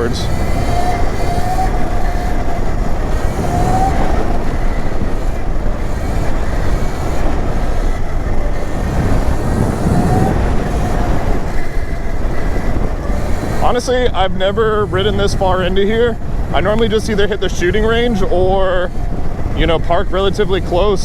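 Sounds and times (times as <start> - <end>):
electric motor whine: 0.0 - 21.0
tyres and frame rattling over ground: 0.0 - 21.0
wind on microphone: 0.0 - 21.0.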